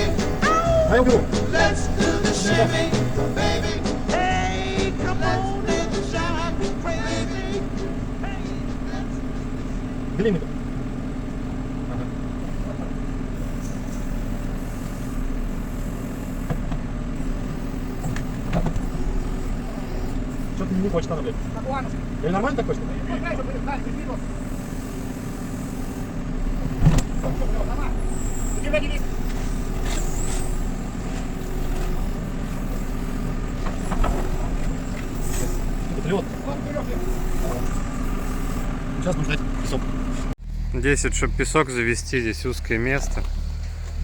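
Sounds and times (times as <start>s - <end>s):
short high squeal: 0.0s - 7.5s, 17.2s - 21.0s, 24.2s - 39.0s
backhoe loader diesel engine running: 0.0s - 44.0s.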